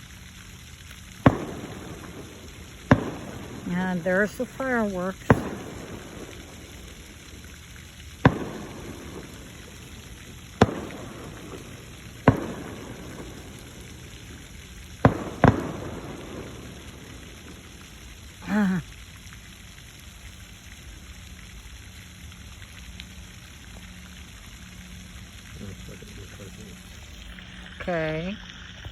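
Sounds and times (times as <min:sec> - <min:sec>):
fountain water falling: 0:00.0 - 0:28.9
distant fireworks bangs: 0:00.6 - 0:18.7.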